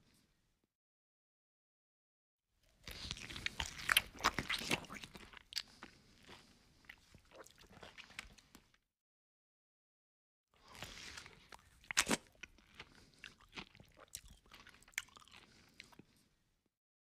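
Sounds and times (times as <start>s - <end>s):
crunchy chewing: 2.8s - 8.7s, 10.6s - 16.2s.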